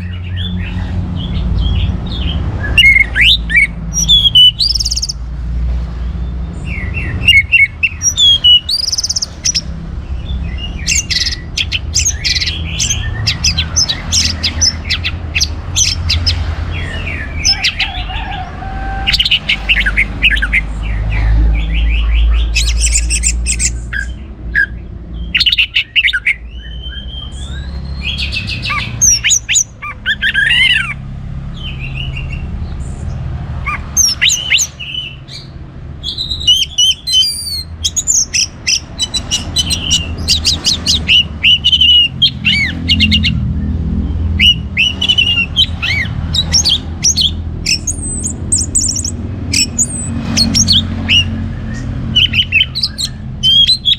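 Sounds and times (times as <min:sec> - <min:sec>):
thrush singing: 0:00.0 - 0:05.3, 0:06.2 - 0:53.9.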